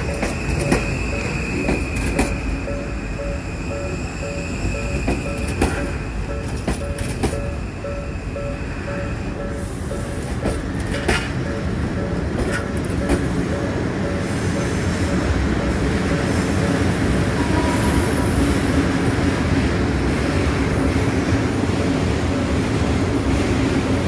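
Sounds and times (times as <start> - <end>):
wheels clacking on rail joints: 0.0 - 3.5, 4.3 - 16.8
train wheels rumbling: 0.0 - 24.0
level crossing bell ringing: 2.6 - 10.3, 11.2 - 16.7.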